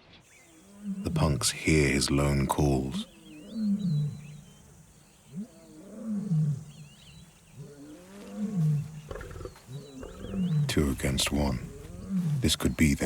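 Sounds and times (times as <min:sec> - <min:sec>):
lion roaring: 0:07.6 - 0:12.7.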